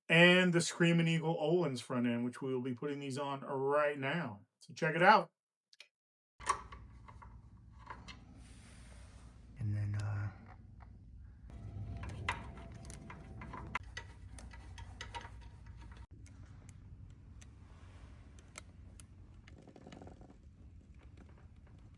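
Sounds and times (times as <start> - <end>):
hand tools clicking and tapping: 12.0 - 16.3.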